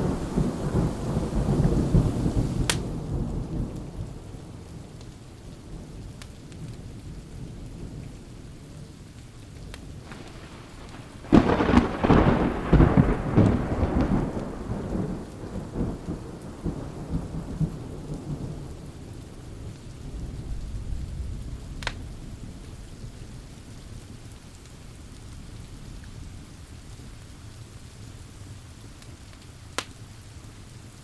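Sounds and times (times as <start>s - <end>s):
thunder rumbling: 0.0s - 8.4s, 9.9s - 23.1s
steady rain: 0.0s - 31.0s.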